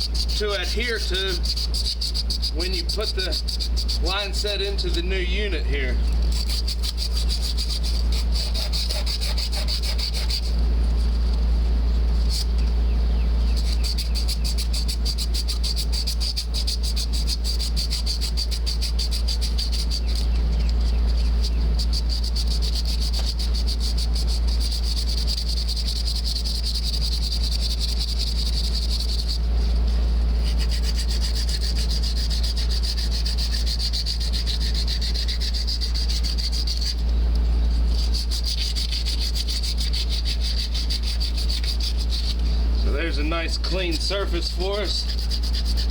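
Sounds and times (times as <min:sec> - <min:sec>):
insect trilling: 0:00.0 - 0:10.6, 0:13.2 - 0:45.9
cloth rubbing on copper pipe: 0:00.0 - 0:11.2, 0:21.1 - 0:37.0, 0:37.7 - 0:45.9.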